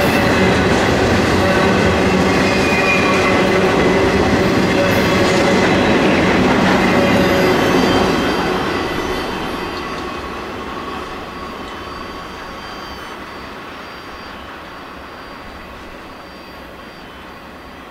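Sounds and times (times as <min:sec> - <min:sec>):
freight train rumbling: 0:00.0 - 0:17.9
high-pitched wheel and rail ringing: 0:00.0 - 0:17.9.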